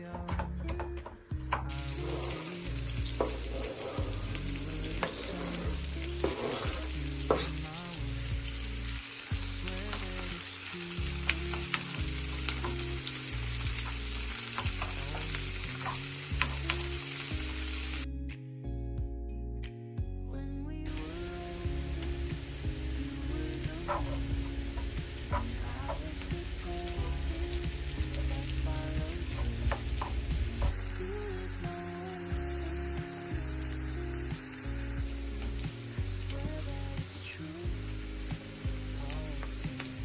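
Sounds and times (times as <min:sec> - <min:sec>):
soft background music: 0:00.0 - 0:40.0
utensil stirring in a pan: 0:01.7 - 0:17.9
food sizzling in a pan: 0:01.7 - 0:18.1, 0:20.9 - 0:40.0.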